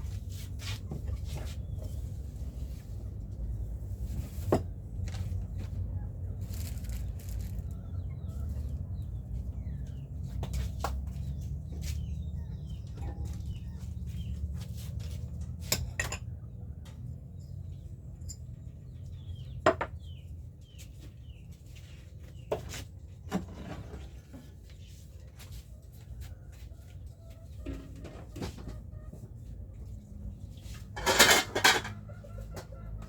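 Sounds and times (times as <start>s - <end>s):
dishes clinking and clattering: 15.6s - 16.4s, 31.0s - 32.1s.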